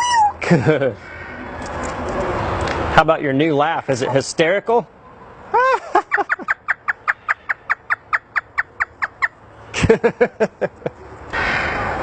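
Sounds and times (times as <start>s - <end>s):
parrot imitating laughter: 5.5s - 7.0s.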